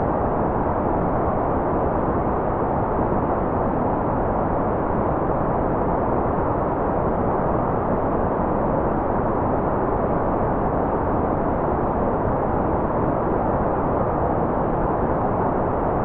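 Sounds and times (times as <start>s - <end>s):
white noise: 0.0s - 16.0s.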